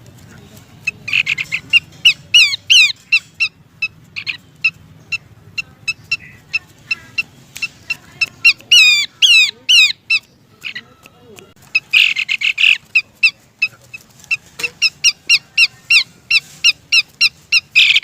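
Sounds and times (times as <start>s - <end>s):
sharp bird call notes: 11.6s - 13.4s.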